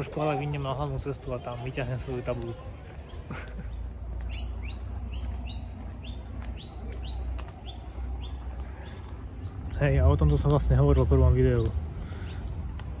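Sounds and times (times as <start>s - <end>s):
low steady rumble: 3.8s - 13.0s.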